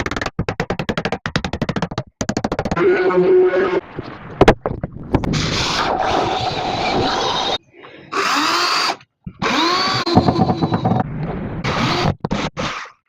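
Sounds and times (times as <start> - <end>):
power tool working wood: 5.7 - 11.0.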